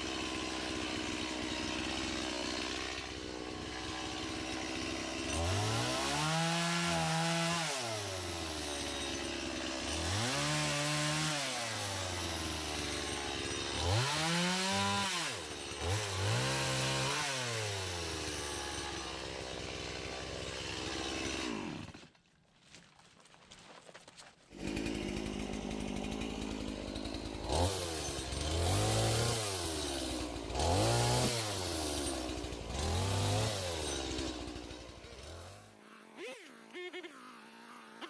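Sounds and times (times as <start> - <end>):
chainsaw revving: 0.0 - 22.1, 24.5 - 38.0.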